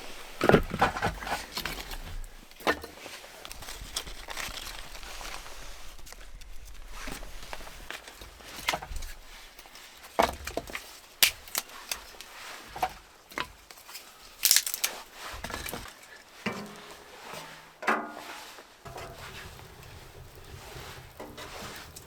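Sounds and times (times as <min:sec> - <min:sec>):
wood knocking and cracking: 0:00.4 - 0:05.3, 0:10.1 - 0:13.7, 0:14.4 - 0:16.8.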